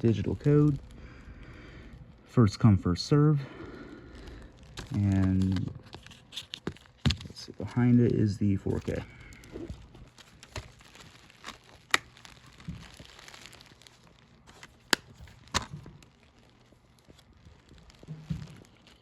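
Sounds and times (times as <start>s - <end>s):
plastic case clicks and snaps: 14.9s - 15.8s.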